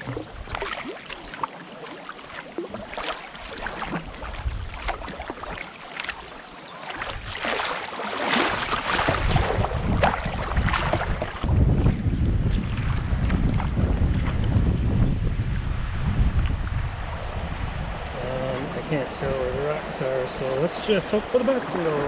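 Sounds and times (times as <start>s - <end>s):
paddle strokes splashing: 0.0s - 11.5s
rippling river water: 0.0s - 14.7s, 15.8s - 22.0s
wind buffeting microphone: 3.6s - 5.3s, 7.0s - 7.5s, 8.4s - 22.0s.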